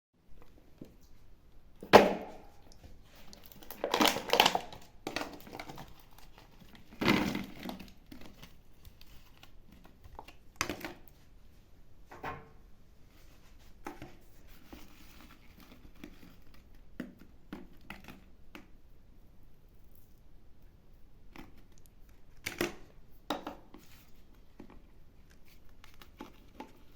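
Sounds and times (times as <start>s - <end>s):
plastic wrapping crinkling: 2.0s - 11.1s.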